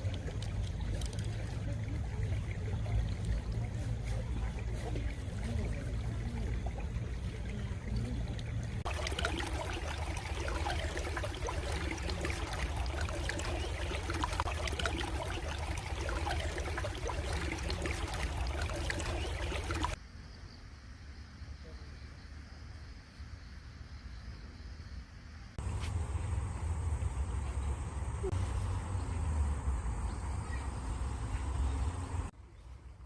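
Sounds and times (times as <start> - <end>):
stream water trickling: 0.0 - 20.0, 25.6 - 33.0
loud bright rushing water: 8.8 - 20.0.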